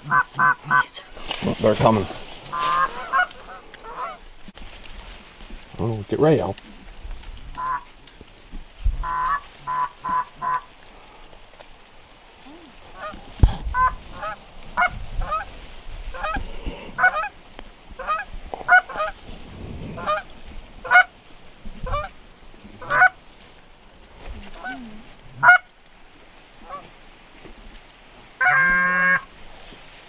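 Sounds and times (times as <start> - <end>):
geese honking: 0.0 - 0.9, 2.4 - 4.3, 7.5 - 7.9, 9.0 - 10.8, 12.9 - 17.4, 18.0 - 19.2, 19.9 - 21.1, 21.8 - 22.2, 22.8 - 23.2, 25.4 - 25.7, 26.6 - 26.9, 28.4 - 29.3.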